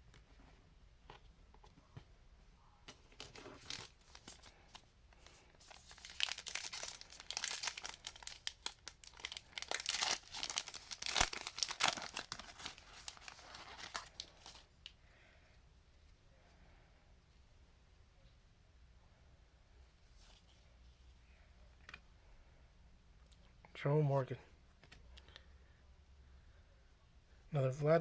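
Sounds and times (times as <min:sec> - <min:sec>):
plastic wrapper tearing and crinkling: 0:03.1 - 0:04.8, 0:05.6 - 0:14.7.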